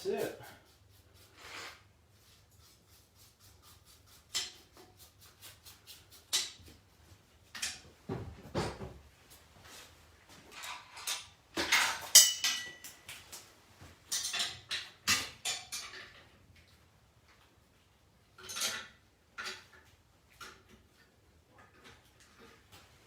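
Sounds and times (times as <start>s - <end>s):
metal parts clinking and clanking: 18.4s - 19.6s.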